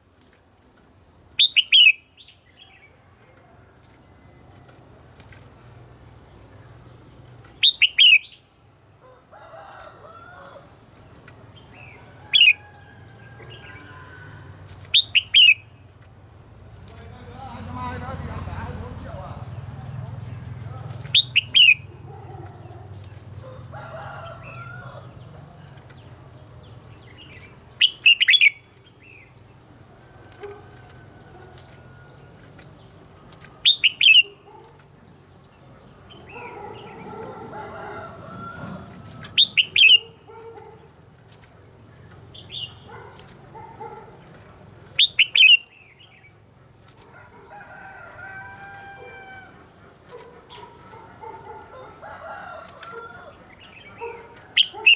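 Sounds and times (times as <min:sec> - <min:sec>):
sharp whistled bird song: 0:01.4 - 0:02.4, 0:07.4 - 0:08.4, 0:21.0 - 0:21.9, 0:27.3 - 0:29.2, 0:45.0 - 0:45.9
soft warbling bird calls: 0:38.4 - 0:40.6.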